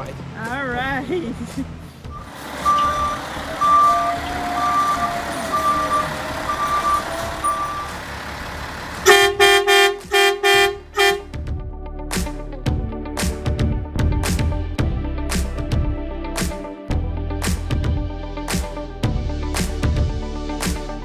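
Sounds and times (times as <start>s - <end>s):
truck reverse alarm beeping: 2.1s - 9.6s
truck horn honks: 2.1s - 11.3s.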